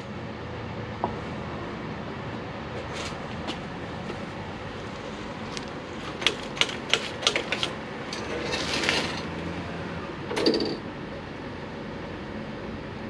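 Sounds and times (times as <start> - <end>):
sharp mechanical clicks: 6.1 - 7.8, 10.3 - 10.8
low steady rumble: 7.7 - 13.0.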